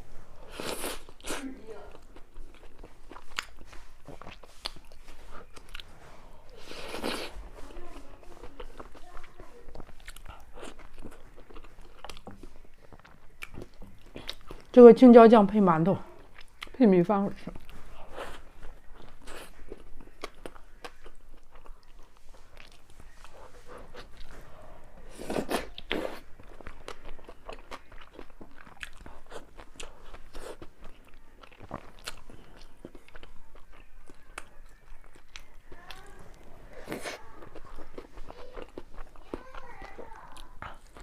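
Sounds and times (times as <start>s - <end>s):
person biting and chewing: 25.1s - 34.5s.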